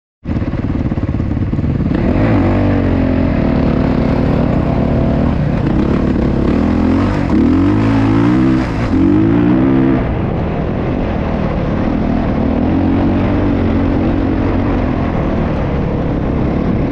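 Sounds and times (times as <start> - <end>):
motocross bike engine revving: 0.8 - 10.4.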